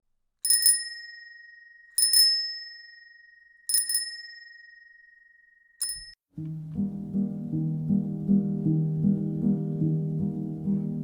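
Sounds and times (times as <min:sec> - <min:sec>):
small bell dinging: 0:00.5 - 0:06.2.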